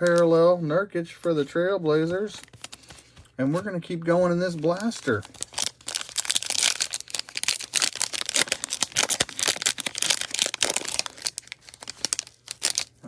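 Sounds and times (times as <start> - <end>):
wrapper tearing and crinkling: 4.5 - 13.0.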